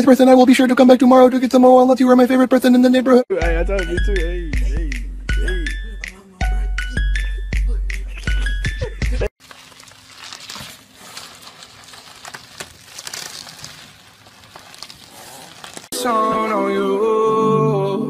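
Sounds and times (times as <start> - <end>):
music with singing: 3.3 - 9.3, 15.9 - 18.0
bubble wrap crinkling: 9.4 - 16.0.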